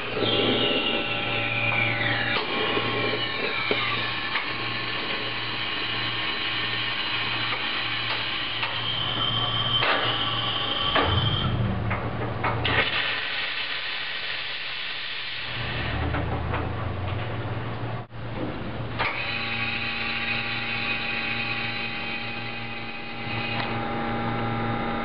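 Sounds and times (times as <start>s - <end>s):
espresso machine motor hum: 0.0s - 8.7s, 19.2s - 25.0s
espresso machine hissing: 0.0s - 11.4s, 12.8s - 15.9s, 19.2s - 25.0s
steady whine: 0.0s - 13.2s, 14.1s - 25.0s.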